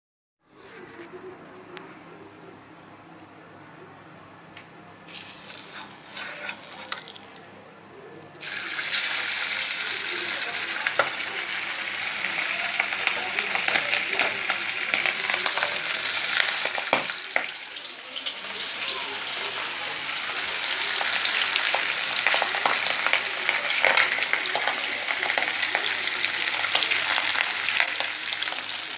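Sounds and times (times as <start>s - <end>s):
oil sizzling in a pan: 5.1s - 7.4s, 8.4s - 28.9s.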